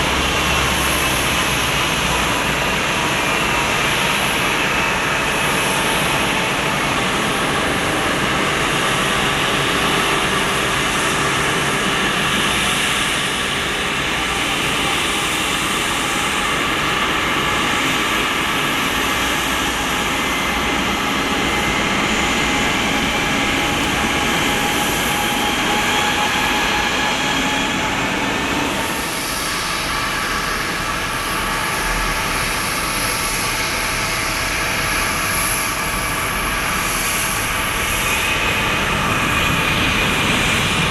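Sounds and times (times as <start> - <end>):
jet engines rumbling and whining: 0.0 - 40.9.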